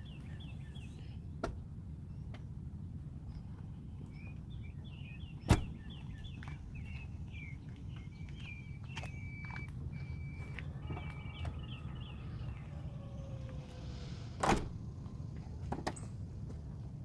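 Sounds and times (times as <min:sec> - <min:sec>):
birds chirping: 0:00.0 - 0:01.4, 0:03.3 - 0:16.2
steady low rumble: 0:00.0 - 0:17.0
seat latching clunk: 0:14.4 - 0:14.8.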